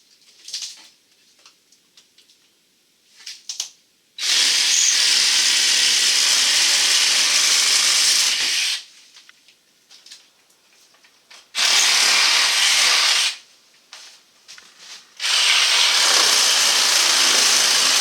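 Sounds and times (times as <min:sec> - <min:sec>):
power tool hissing: 0:04.2 - 0:08.8, 0:11.6 - 0:13.4, 0:15.2 - 0:18.0.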